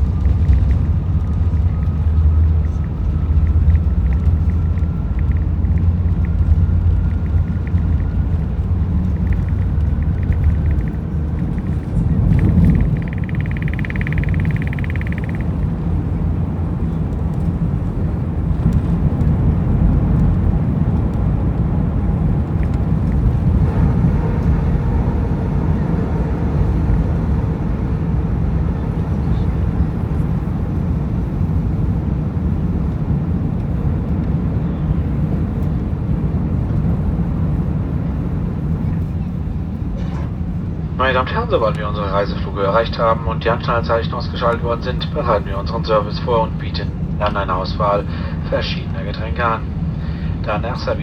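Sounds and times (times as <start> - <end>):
jet engine rumble in cabin: 0.0 - 51.0.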